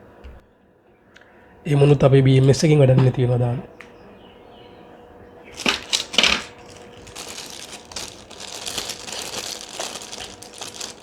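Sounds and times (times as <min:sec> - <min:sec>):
hard parts clinking: 0:05.5 - 0:11.0
rustling and light scraping: 0:05.5 - 0:11.0.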